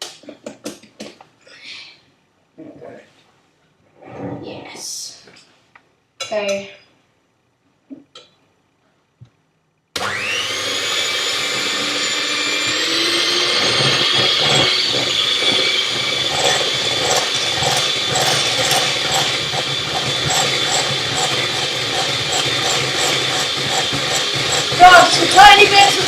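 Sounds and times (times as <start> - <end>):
electric blender motor running: 10.0 - 26.0.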